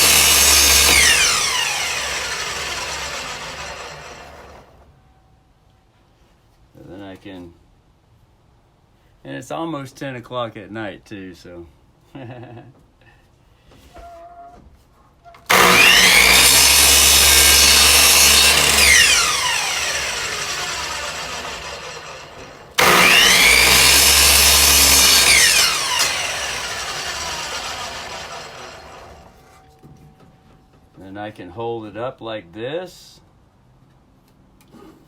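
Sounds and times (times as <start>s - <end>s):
electric miter saw running: 0.0s - 4.8s, 15.5s - 29.4s.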